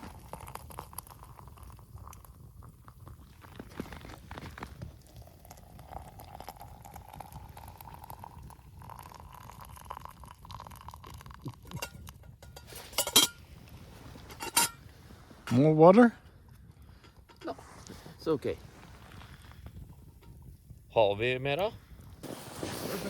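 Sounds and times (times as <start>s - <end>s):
water pouring into container: 0.0s - 12.0s
metal cookware clinks: 11.7s - 13.4s.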